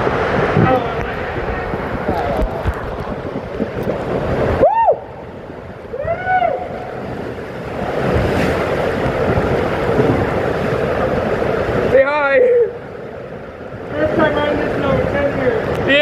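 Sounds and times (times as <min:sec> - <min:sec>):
rushing water: 0:00.0 - 0:16.0
wind buffeting microphone: 0:00.0 - 0:16.0
riders yelling: 0:05.9 - 0:07.2.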